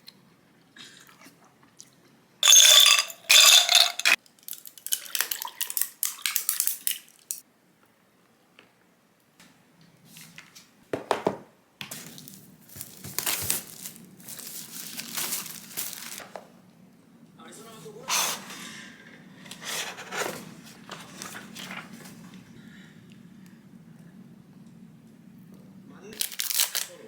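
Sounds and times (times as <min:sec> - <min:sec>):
dishes and utensils clattering: 0:02.4 - 0:04.2
rustling: 0:12.0 - 0:16.4.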